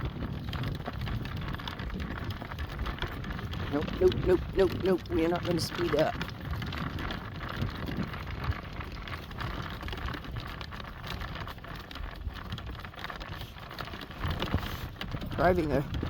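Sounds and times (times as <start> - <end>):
horse-drawn cart trotting: 0.0 - 16.0
wheels and harness rattling: 0.0 - 16.0
wind on microphone: 0.0 - 16.0.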